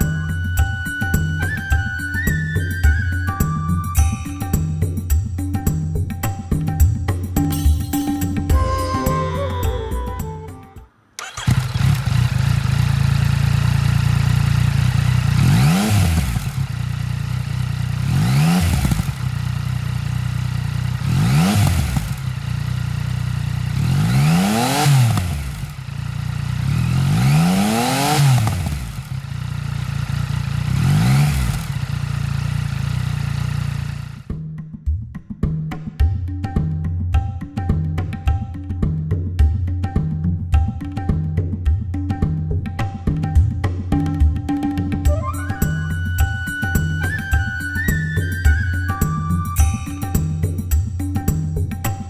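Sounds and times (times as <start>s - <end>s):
motorcycle engine idling and revving: 0.0s - 9.9s, 11.2s - 34.5s, 49.1s - 52.0s.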